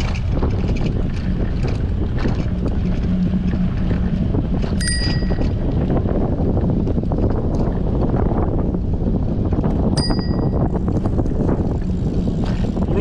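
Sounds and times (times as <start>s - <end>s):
wind rushing over microphone: 0.0s - 13.0s
bicycle bell ringing: 4.8s - 5.5s, 10.0s - 10.6s.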